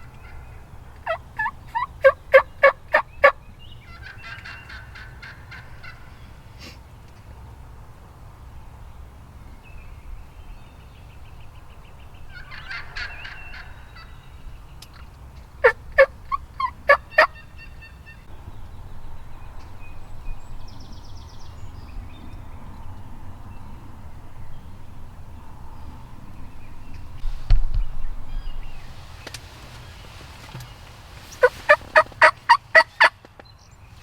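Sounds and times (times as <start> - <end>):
sharp loud turkey calls: 0.0 - 6.8, 12.3 - 14.1, 14.9 - 18.3, 31.3 - 33.2
turkey rattling call: 1.0 - 6.1, 12.3 - 14.1, 14.9 - 18.2, 31.3 - 33.1
turkeys gobbling: 1.0 - 6.2, 12.3 - 14.1, 14.9 - 18.1, 31.3 - 33.1.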